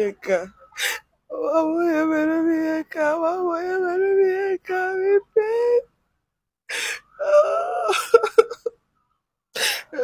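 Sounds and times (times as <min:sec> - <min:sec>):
woman wailing a sung lament: 0:01.3 - 0:05.8, 0:07.2 - 0:08.7.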